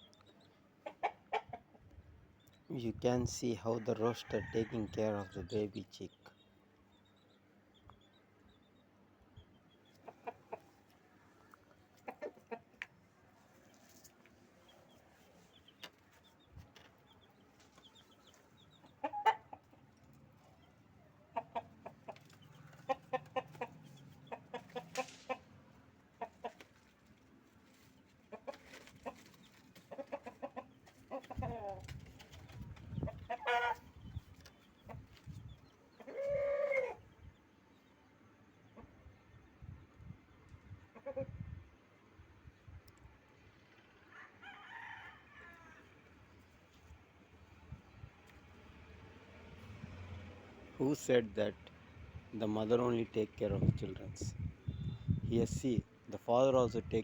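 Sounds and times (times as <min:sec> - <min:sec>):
rooster clucking: 0:00.8 - 0:01.8, 0:09.9 - 0:10.8, 0:11.8 - 0:12.9, 0:18.8 - 0:19.9, 0:21.2 - 0:25.6, 0:28.3 - 0:31.9, 0:33.0 - 0:33.9, 0:36.0 - 0:37.0.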